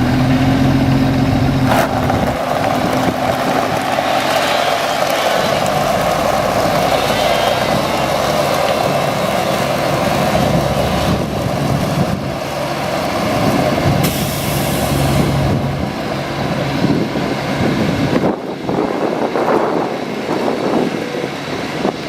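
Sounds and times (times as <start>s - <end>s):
truck diesel engine running: 0.0s - 22.0s
air brake hiss: 14.0s - 15.2s.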